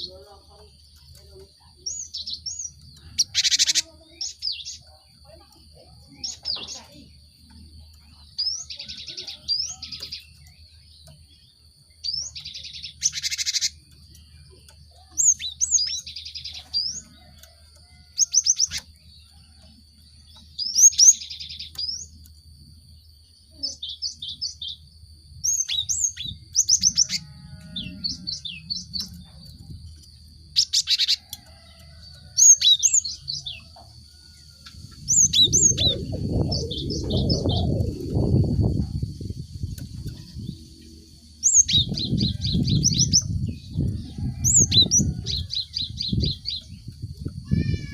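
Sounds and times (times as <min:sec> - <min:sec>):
bird chirps and churrs: 0:00.0 - 0:19.3, 0:20.2 - 0:22.4, 0:23.0 - 0:31.4, 0:32.0 - 0:33.7, 0:34.6 - 0:47.9
steady high whine: 0:34.7 - 0:42.9
low rumble: 0:34.8 - 0:44.1.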